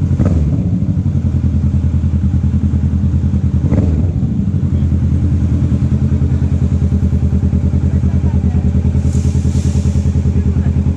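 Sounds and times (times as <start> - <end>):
motorcycle engine idling: 0.0 - 10.9
brief hiss: 9.0 - 10.2.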